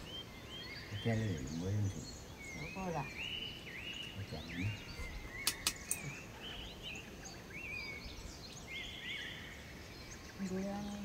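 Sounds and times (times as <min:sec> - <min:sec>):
short sharp clicks: 0:05.4 - 0:06.1.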